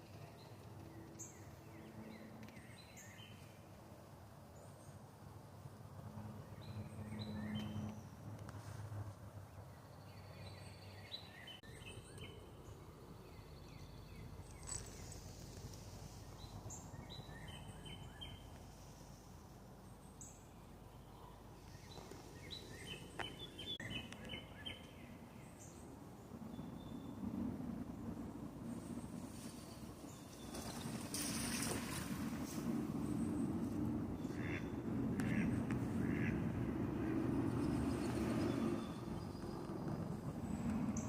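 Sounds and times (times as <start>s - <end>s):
steady outdoor hiss: 0.0s - 41.0s.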